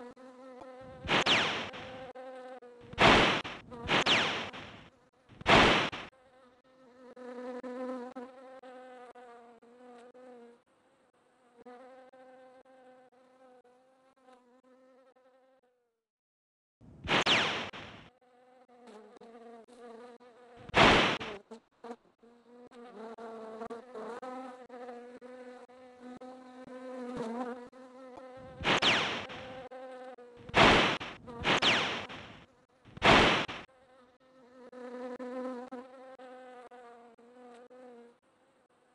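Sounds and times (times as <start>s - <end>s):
insect buzzing: 0.0s - 15.9s, 17.0s - 38.9s
loud short noise bursts: 5.4s - 6.1s, 17.0s - 18.1s, 30.5s - 32.4s, 33.0s - 33.7s.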